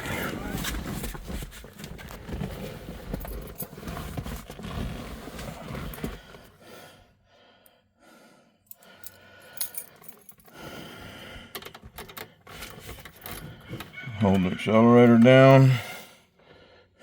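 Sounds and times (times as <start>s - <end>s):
keys jingling: 8.7s - 10.6s.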